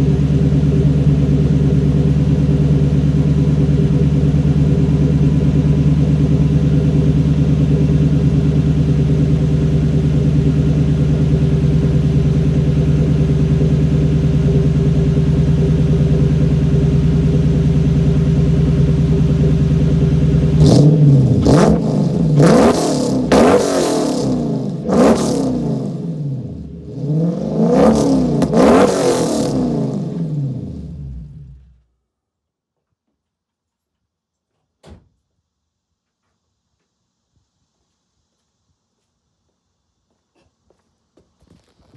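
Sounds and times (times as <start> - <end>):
car engine idling and revving: 0.0 - 31.9.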